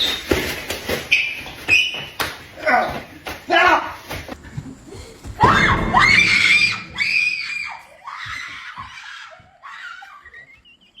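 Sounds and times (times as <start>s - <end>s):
shrill scream: 5.4s - 10.6s.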